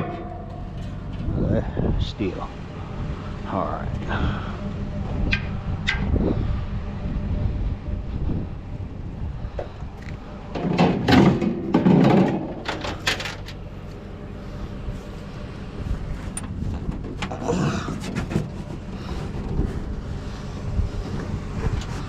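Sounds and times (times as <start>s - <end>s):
scrap metal clattering: 0.0s - 1.4s, 10.5s - 13.6s
low rumble: 0.0s - 22.0s.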